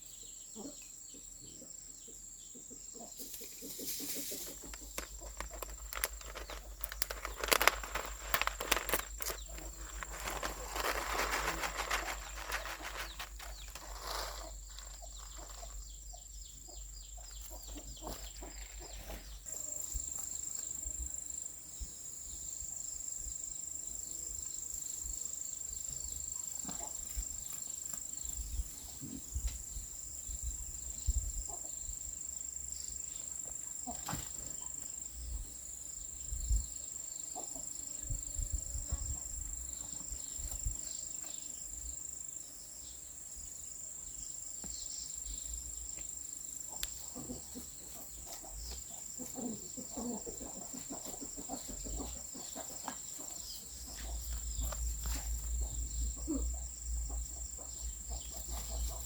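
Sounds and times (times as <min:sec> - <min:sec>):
insects chirping and buzzing: 0:00.0 - 0:59.0
knocks and thumps of garden work: 0:03.4 - 0:20.8, 0:33.8 - 0:35.0, 0:46.8 - 0:59.0.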